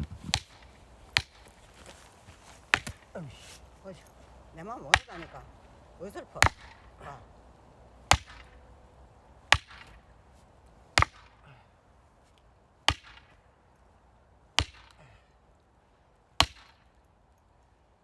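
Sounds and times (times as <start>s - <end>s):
axe chopping firewood: 0.0s - 3.6s, 4.6s - 5.6s, 6.3s - 7.2s, 8.1s - 8.6s, 9.5s - 10.0s, 11.0s - 11.5s, 12.9s - 13.3s, 14.6s - 15.1s, 16.4s - 16.9s.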